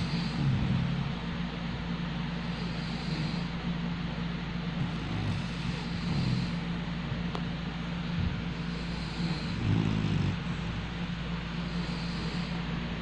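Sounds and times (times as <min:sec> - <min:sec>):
dog snoring: 0:00.0 - 0:01.4, 0:02.2 - 0:03.8, 0:04.6 - 0:06.8, 0:08.1 - 0:13.0
low hum and hiss: 0:00.0 - 0:13.0.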